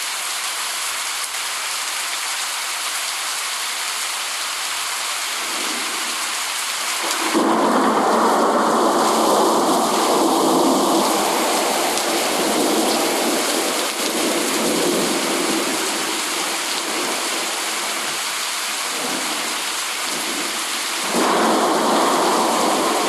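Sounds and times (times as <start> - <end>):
steady rain: 0.0 - 23.0
low rumble of thunder: 7.0 - 16.2, 20.1 - 23.0.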